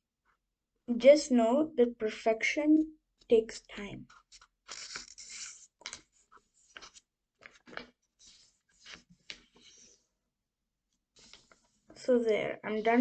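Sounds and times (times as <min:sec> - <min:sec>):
paper rustling as it is folded: 0:04.1 - 0:10.0, 0:11.2 - 0:12.0.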